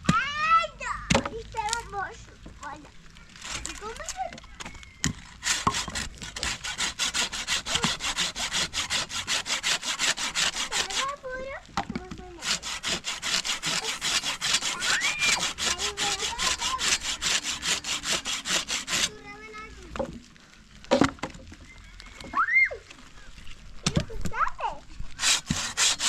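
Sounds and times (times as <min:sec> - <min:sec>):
hand saw cutting wood: 0:03.3 - 0:04.4, 0:05.0 - 0:11.4, 0:12.1 - 0:19.2, 0:25.1 - 0:26.0.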